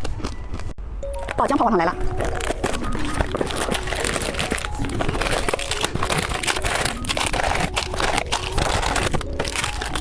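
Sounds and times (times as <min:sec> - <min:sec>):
plastic wrapper crinkling: 0:02.0 - 0:10.0.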